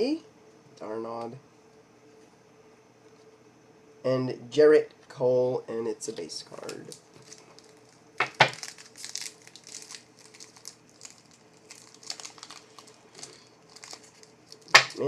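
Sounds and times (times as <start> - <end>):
foil wrapper crinkling: 6.6 - 15.0.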